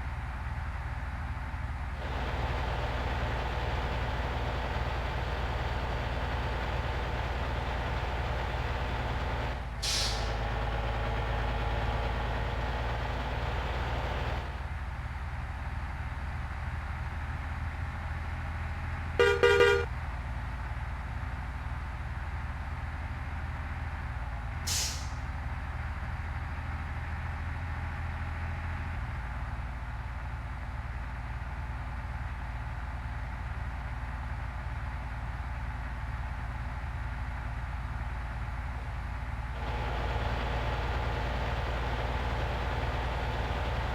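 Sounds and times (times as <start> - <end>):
truck engine running: 0.0 - 43.9
truck horn blast: 19.2 - 19.9
hiss of air: 24.7 - 25.2.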